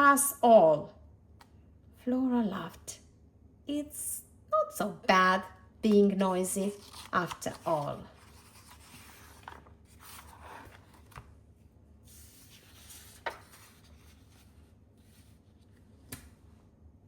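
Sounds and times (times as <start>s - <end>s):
paper rustling: 6.6s - 11.3s, 12.1s - 16.2s.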